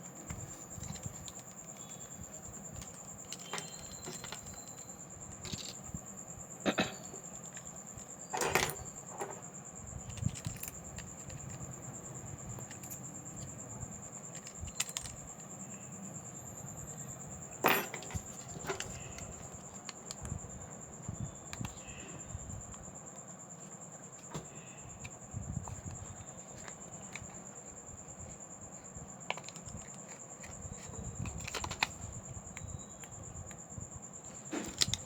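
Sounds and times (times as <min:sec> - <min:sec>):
small metal tools clicking: 0:00.3 - 0:05.9, 0:10.1 - 0:11.6, 0:14.2 - 0:15.5.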